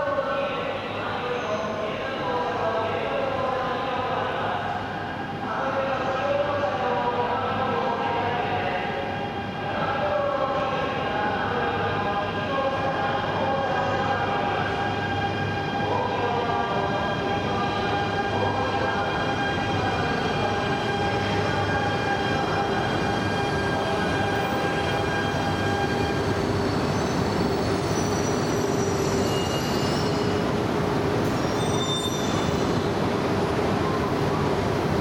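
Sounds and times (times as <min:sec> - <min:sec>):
train rumbling with whining tone: 0:00.0 - 0:35.0
train brakes squealing: 0:22.4 - 0:30.5, 0:31.2 - 0:32.9.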